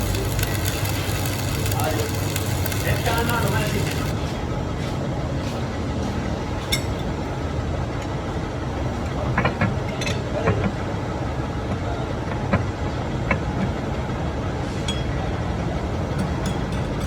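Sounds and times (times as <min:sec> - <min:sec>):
machine droning: 0:00.0 - 0:04.6.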